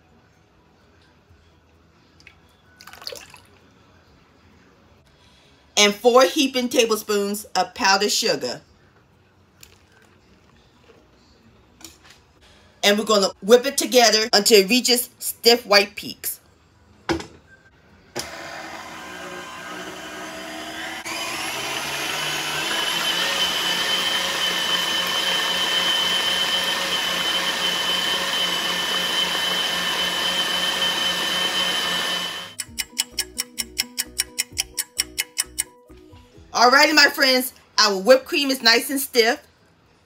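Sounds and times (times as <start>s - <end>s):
stand mixer whirring with whine: 18.2s - 32.6s.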